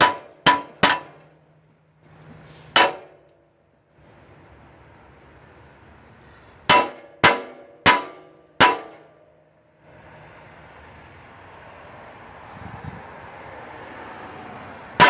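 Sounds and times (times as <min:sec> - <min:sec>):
metal clanks ringing: 0:00.0 - 0:01.5, 0:02.4 - 0:03.3, 0:06.7 - 0:09.3.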